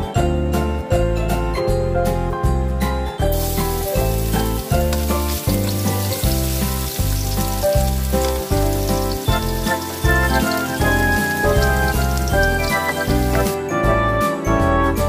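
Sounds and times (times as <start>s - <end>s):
garlic sizzling in a frying pan: 3.3s - 13.6s
spatula stirring in a pan: 3.4s - 13.6s.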